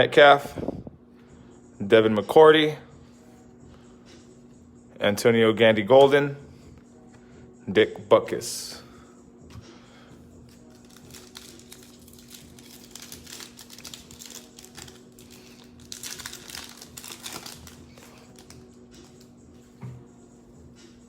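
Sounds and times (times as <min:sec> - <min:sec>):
wrapper crinkling: 0:10.5 - 0:18.7
cards rustling: 0:10.5 - 0:19.3.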